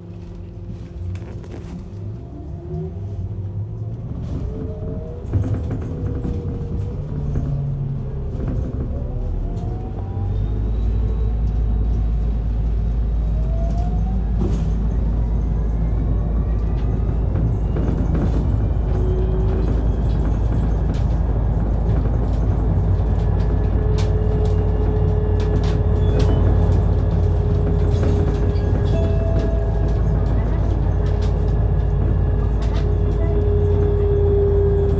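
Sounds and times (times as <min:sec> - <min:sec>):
bus engine rumble: 0:00.0 - 0:34.9.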